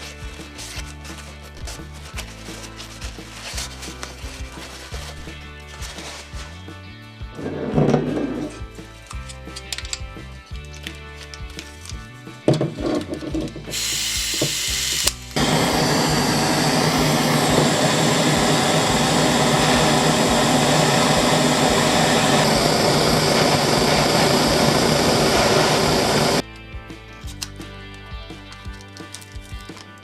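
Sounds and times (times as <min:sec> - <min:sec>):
power tool running: 0:13.7 - 0:26.4.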